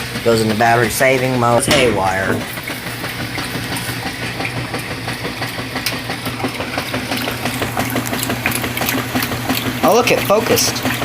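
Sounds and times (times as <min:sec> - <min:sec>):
washing machine agitating: 0:00.0 - 0:11.0.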